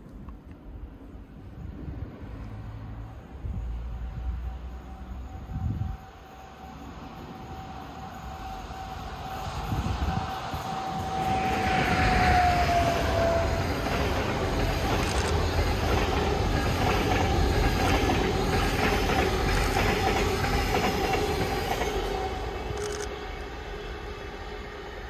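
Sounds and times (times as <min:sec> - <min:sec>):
high train whine: 0:00.0 - 0:25.0
train wheels rumbling and clacking: 0:07.2 - 0:24.4.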